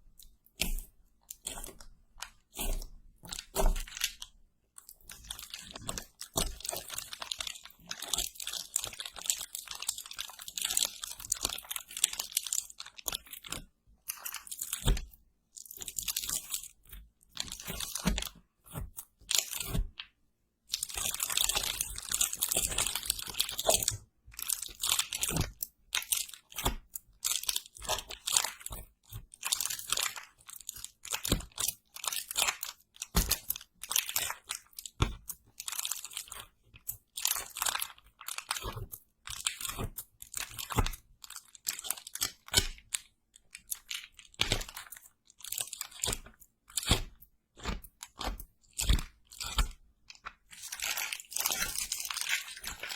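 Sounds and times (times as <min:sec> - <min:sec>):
crunching and crackling: 0:20.7 - 0:52.9.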